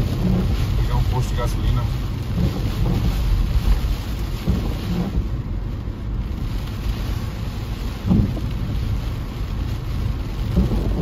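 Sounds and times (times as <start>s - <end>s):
car driving on wet road: 0.0s - 11.0s
heavy rain on a car roof: 0.0s - 11.0s.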